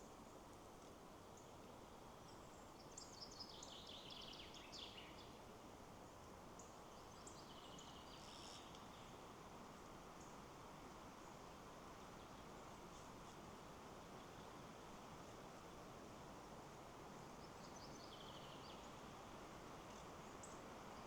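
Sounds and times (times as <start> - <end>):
wind in trees: 0.0 - 21.0
birdsong: 17.2 - 19.0.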